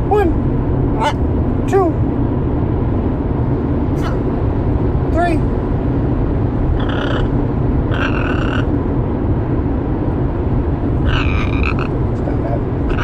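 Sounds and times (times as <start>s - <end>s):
steady low rumble: 0.0s - 13.0s
pet bird calls: 0.9s - 1.2s, 6.8s - 7.3s, 7.9s - 8.7s, 11.0s - 12.0s.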